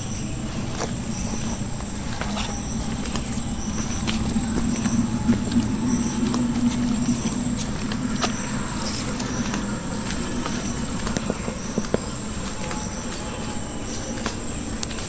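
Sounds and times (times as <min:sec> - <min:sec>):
footsteps on a dirt path: 0:00.0 - 0:15.0
high-pitched insect drone: 0:00.0 - 0:15.0.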